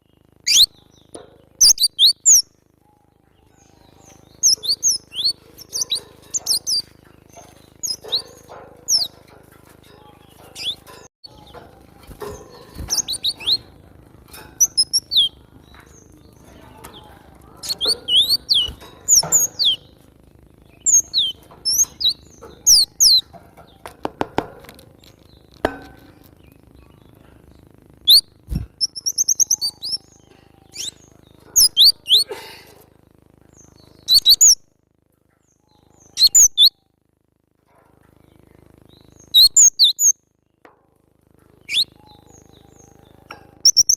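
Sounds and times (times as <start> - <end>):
bird chirping: 0.0 - 32.3, 33.4 - 34.6, 35.3 - 37.0, 38.1 - 40.6, 41.5 - 43.9.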